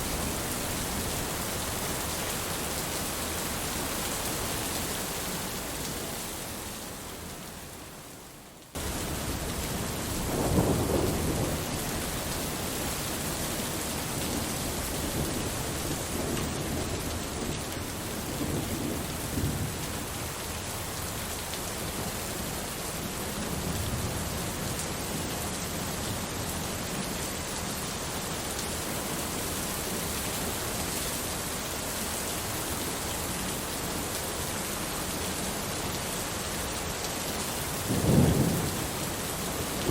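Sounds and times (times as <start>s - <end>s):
steady rain: 0.0s - 39.9s
rolling thunder: 8.8s - 12.3s, 37.9s - 39.1s.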